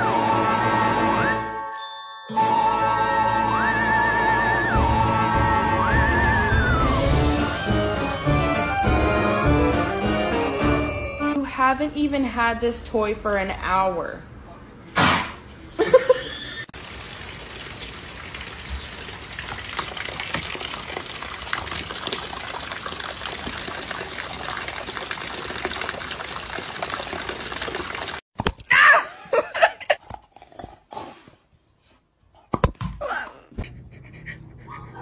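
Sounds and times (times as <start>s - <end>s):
rain hiss: 16.8s - 28.2s.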